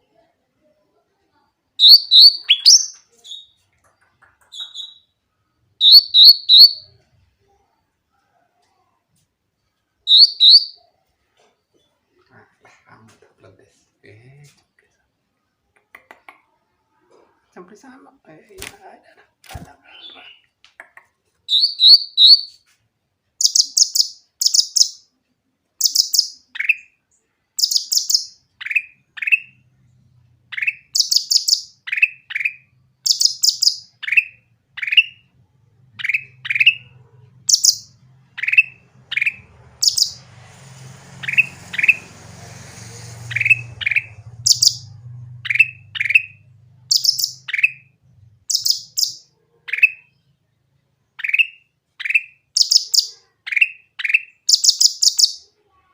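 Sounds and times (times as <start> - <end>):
songbird singing: 1.8 - 5.2, 5.8 - 7.0, 10.1 - 10.9, 21.5 - 22.6, 23.4 - 25.1, 25.8 - 29.6, 30.5 - 35.3, 35.9 - 40.4, 41.1 - 42.3, 43.0 - 50.3, 51.2 - 55.5
faint low hum: 31.8 - 51.3.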